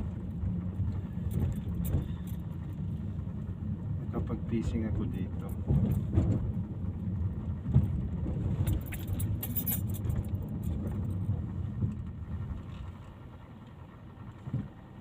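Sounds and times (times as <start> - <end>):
vehicle rumble: 0.0 - 15.0
metallic jingle: 8.7 - 10.3.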